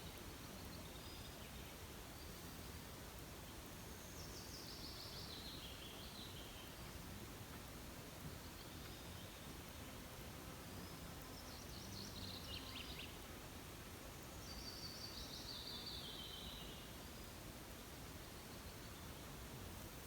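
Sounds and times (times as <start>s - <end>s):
faint outdoor hiss: 0.0s - 20.0s
songbird singing: 10.7s - 13.2s.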